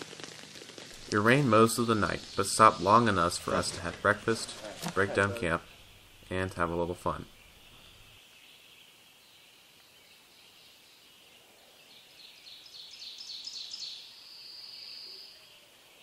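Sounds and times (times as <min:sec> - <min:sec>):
high insect-like hiss: 0:00.9 - 0:06.2.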